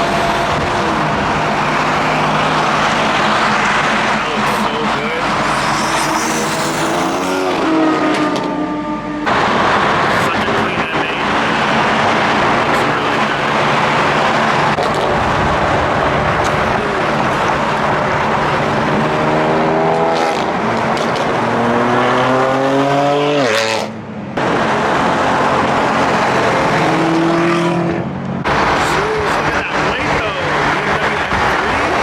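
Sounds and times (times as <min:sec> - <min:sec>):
car engine accelerating: 0:00.0 - 0:32.0.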